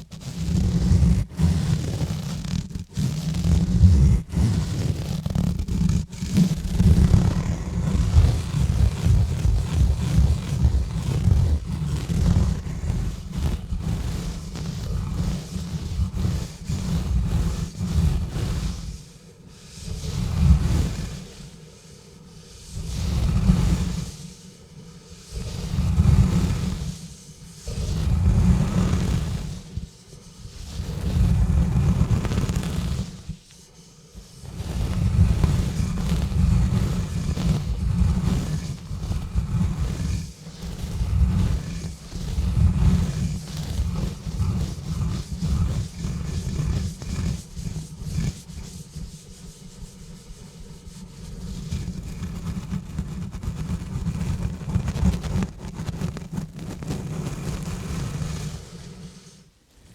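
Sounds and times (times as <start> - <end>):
gloves scrubbing on microphone: 0.0 - 59.9.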